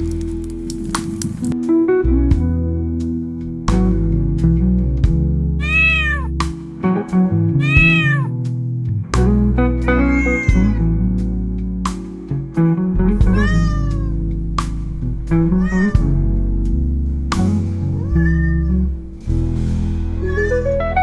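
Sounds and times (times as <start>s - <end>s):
plucked guitar music: 0.0s - 21.0s
cat meowing: 5.6s - 6.3s, 7.6s - 8.3s, 10.0s - 10.8s, 13.3s - 14.2s, 15.5s - 16.1s, 17.9s - 19.0s, 20.2s - 20.6s.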